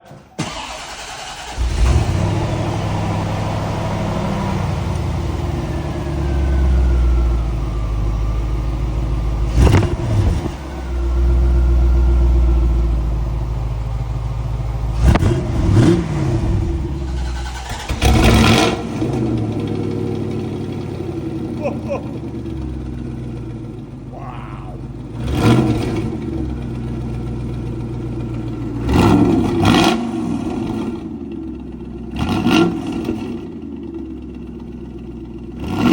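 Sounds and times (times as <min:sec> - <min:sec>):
car engine idling: 0:00.0 - 0:32.2, 0:33.0 - 0:35.6
engine cranking: 0:00.4 - 0:02.0, 0:17.1 - 0:18.5
engine revving: 0:00.4 - 0:08.3, 0:09.1 - 0:12.6, 0:14.8 - 0:31.2, 0:32.1 - 0:33.6, 0:35.5 - 0:35.9.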